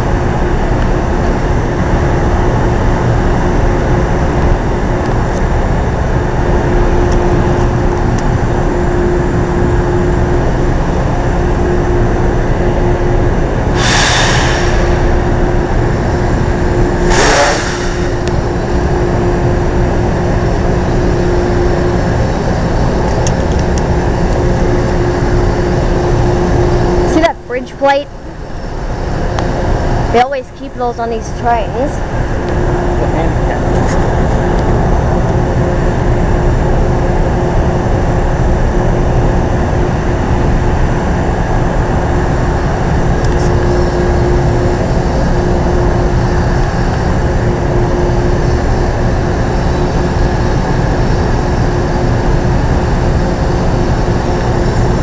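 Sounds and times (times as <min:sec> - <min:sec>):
electric train humming: 0:00.0 - 0:55.0
constant tone: 0:03.6 - 0:36.4
short air hisses: 0:13.8 - 0:15.4, 0:17.0 - 0:18.2.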